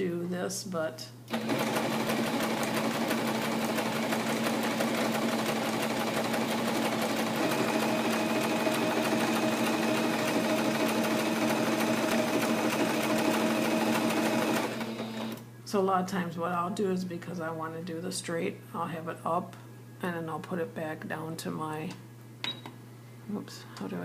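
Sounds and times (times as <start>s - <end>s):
sewing machine stitching: 1.3s - 15.4s.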